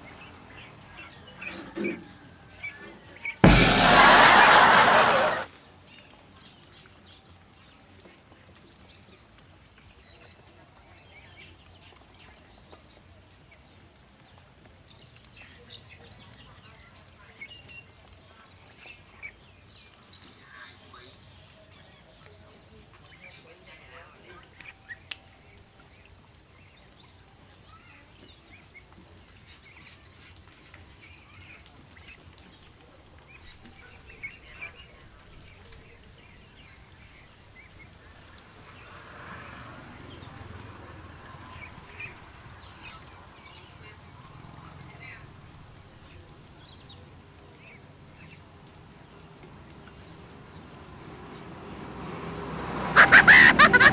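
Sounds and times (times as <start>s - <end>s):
sharp loud sounds: 3.4s - 5.5s, 53.0s - 53.9s.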